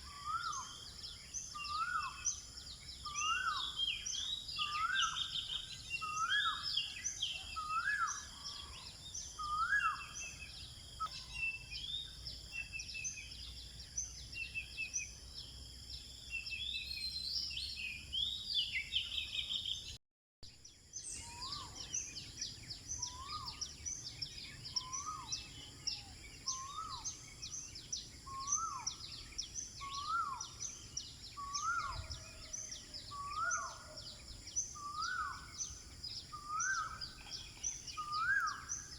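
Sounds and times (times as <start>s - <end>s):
high bird chirps: 21.0s - 38.9s.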